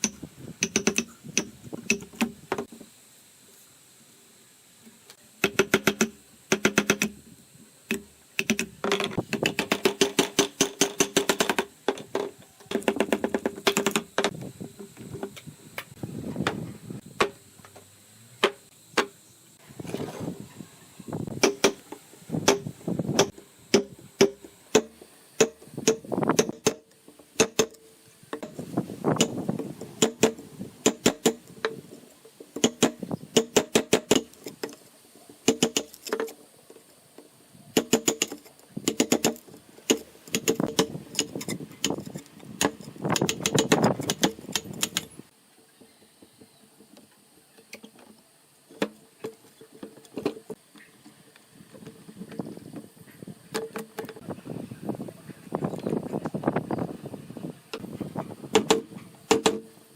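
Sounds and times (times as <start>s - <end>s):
tools knocking on bamboo: 0.0s - 2.7s, 5.4s - 7.2s, 7.9s - 15.4s, 18.4s - 19.1s, 21.4s - 21.8s, 22.4s - 27.8s, 32.6s - 34.8s, 35.4s - 36.3s, 37.8s - 42.0s, 58.5s - 59.7s.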